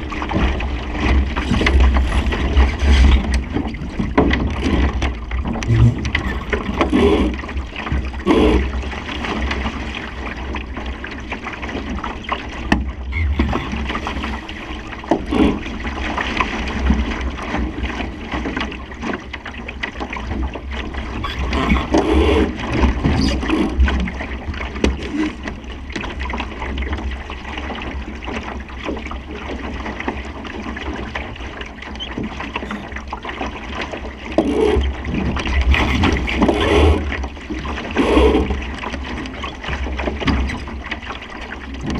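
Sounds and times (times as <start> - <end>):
water rushing along a boat hull: 0.0 - 41.9.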